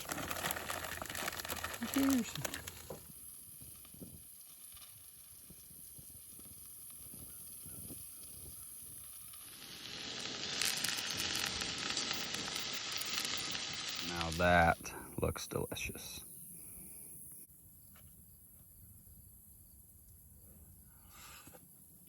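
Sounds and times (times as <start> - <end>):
food sizzling in hot fat: 0.0 - 15.5.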